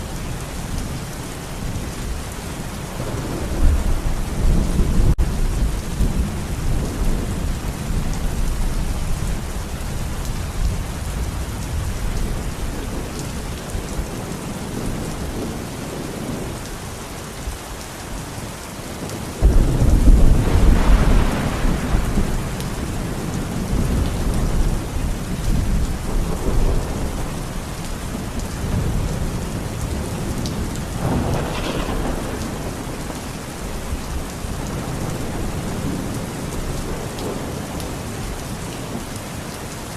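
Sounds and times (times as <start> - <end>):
steady rain in forest: 0.0 - 39.9
rolling thunder: 1.7 - 16.8, 19.0 - 38.2
loud thunder clap: 19.4 - 22.8, 30.5 - 36.1.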